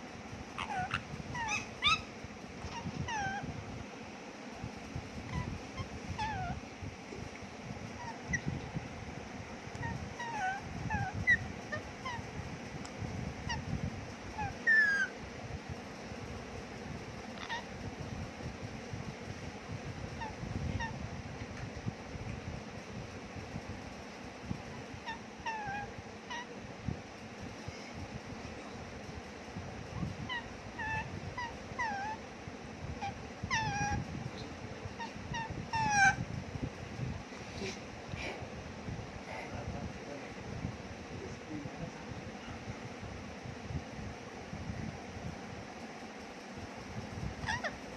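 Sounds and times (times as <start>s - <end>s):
parrot squawking and chirping: 0.5s - 3.5s, 5.2s - 6.6s, 7.9s - 8.6s, 9.7s - 12.3s, 13.4s - 13.7s, 14.4s - 15.2s, 17.4s - 17.7s, 20.2s - 21.0s, 25.0s - 26.5s, 30.0s - 32.2s, 33.0s - 36.2s, 47.4s - 47.9s.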